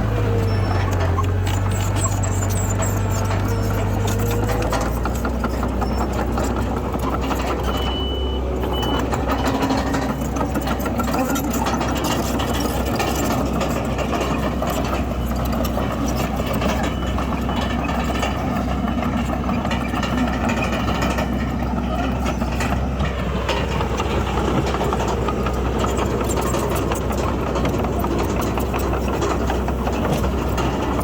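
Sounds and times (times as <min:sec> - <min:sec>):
heavy diesel machinery running: 0:00.0 - 0:31.0
reversing alarm beeps: 0:07.4 - 0:10.3.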